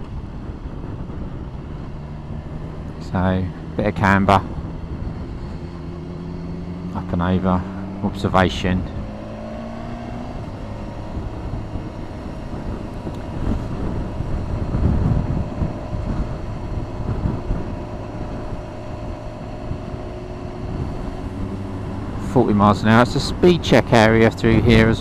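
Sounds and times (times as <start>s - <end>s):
motorcycle engine running: 0.0s - 25.0s
wind rush on microphone: 0.0s - 25.0s.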